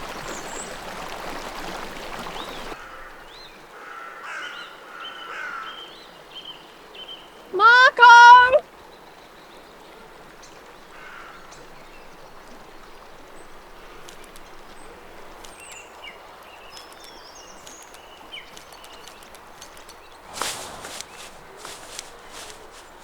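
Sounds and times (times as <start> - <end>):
outdoor background hiss: 11.5 - 23.0
rustle and crunch in undergrowth: 13.4 - 23.0.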